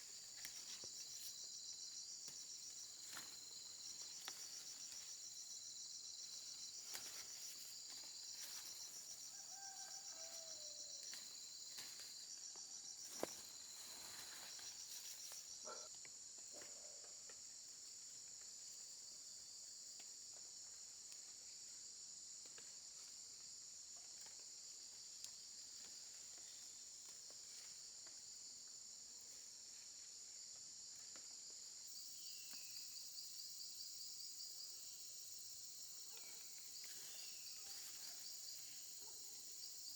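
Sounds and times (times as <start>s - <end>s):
insects chirping in a fast trill: 0.0s - 15.9s, 31.8s - 39.9s.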